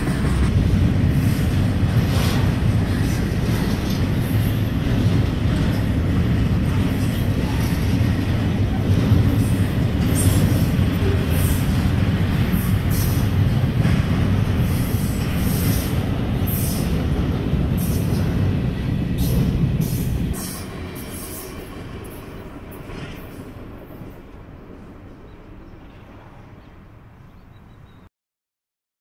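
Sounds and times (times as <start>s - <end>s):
freight train wheels rumbling: 0.0s - 27.7s.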